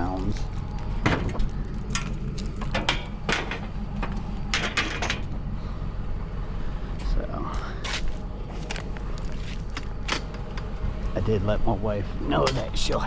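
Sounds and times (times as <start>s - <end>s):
vehicle rumble while driving: 0.0s - 13.0s
sharp knocks and rattles: 0.6s - 5.4s.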